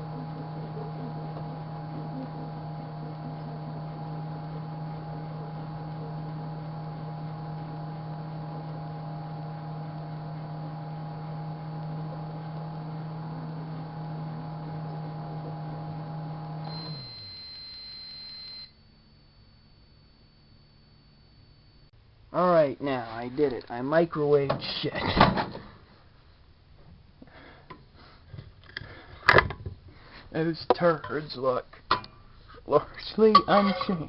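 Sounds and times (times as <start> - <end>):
microwave long beep: 0.0 - 21.9
microwave oven humming: 0.0 - 21.9.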